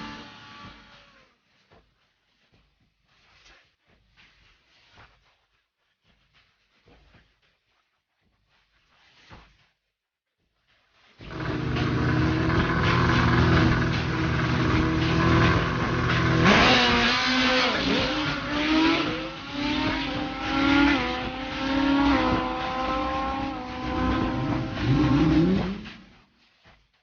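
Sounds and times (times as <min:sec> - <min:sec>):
motorcycle engine revving: 0:00.0 - 0:01.4, 0:11.2 - 0:26.2.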